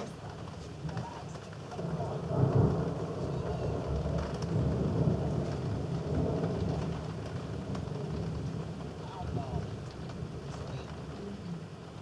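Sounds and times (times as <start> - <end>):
thunder rumbling: 1.8 - 8.8.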